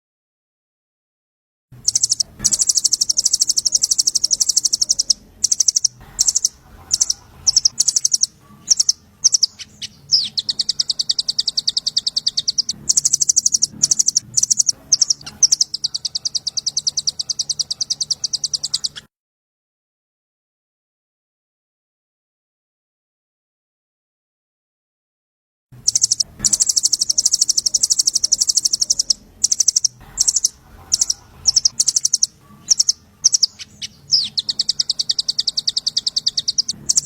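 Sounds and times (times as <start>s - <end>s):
songbird fast high trill: 1.8s - 19.1s, 25.8s - 37.0s.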